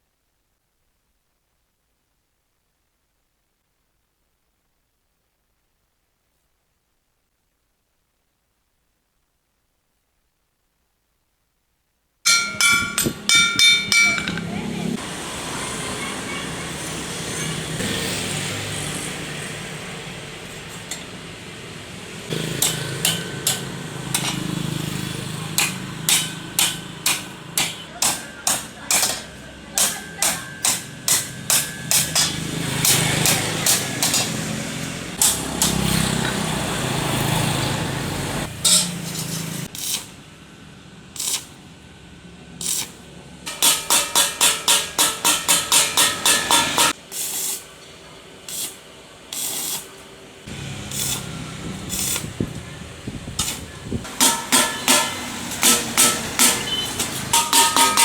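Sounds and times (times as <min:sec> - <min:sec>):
hammer blows on metal: 0:12.3 - 0:14.7, 0:43.5 - 0:47.0, 0:50.9 - 0:58.0
steady hissing: 0:37.9 - 0:41.7, 0:42.6 - 0:57.8.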